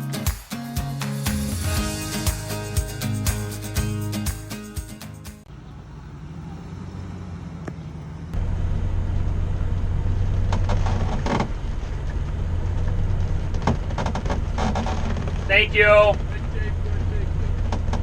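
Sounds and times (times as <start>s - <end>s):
vehicle engine humming: 5.4s - 18.0s.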